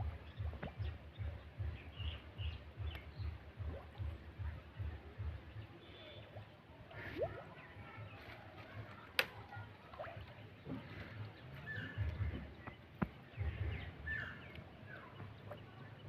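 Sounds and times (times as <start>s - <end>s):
bird-like chirps: 10.6s - 16.0s.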